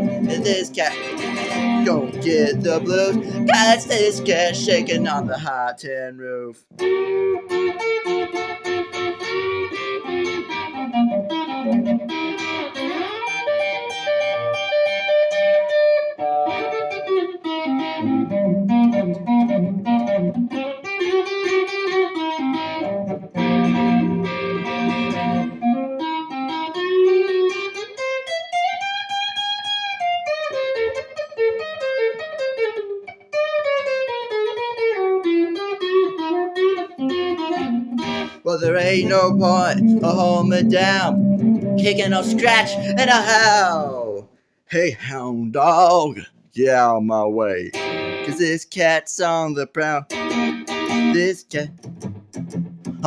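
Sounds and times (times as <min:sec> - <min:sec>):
electric guitar solo over band: 0:00.0 - 0:05.3, 0:06.8 - 0:20.3, 0:22.4 - 0:26.5, 0:37.3 - 0:43.9, 0:47.8 - 0:48.3.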